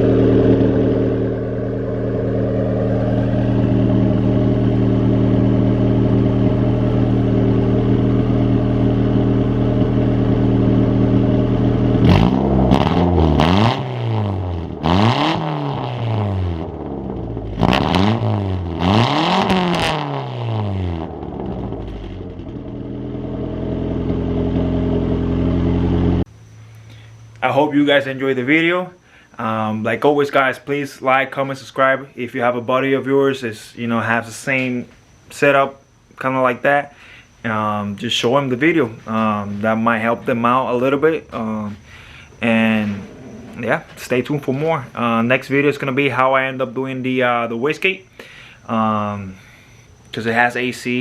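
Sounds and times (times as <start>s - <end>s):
car engine idling and revving: 0.0s - 26.6s, 41.3s - 44.0s.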